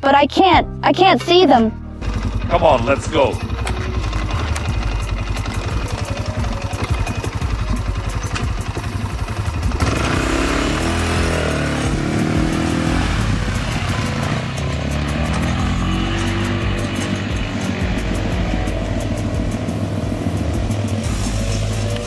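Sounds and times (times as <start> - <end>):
quad bike engine revving: 2.0 - 22.0.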